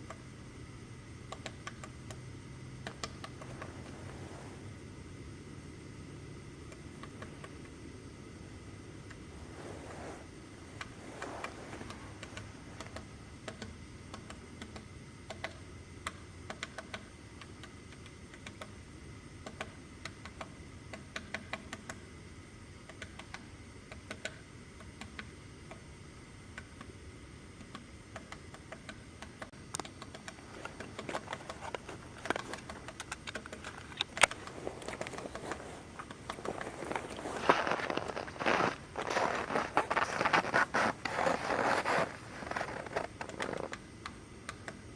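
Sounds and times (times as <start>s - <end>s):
woodpecker pecking at wood: 29.8s - 37.2s.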